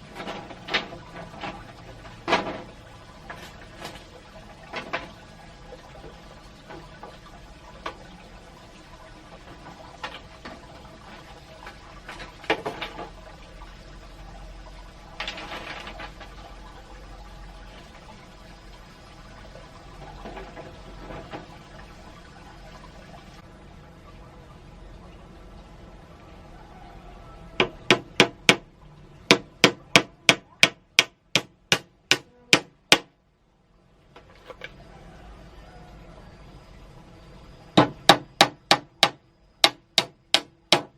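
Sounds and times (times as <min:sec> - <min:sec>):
steady water noise: 0:00.0 - 0:40.9
sharp knocking strikes: 0:27.6 - 0:28.7, 0:29.3 - 0:33.1, 0:37.8 - 0:40.9
clicks and knocks of handling: 0:34.2 - 0:34.8.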